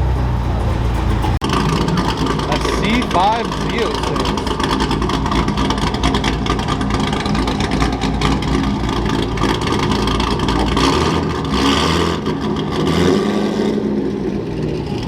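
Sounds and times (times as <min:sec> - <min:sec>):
car engine burbling rolling by: 0:00.0 - 0:15.0.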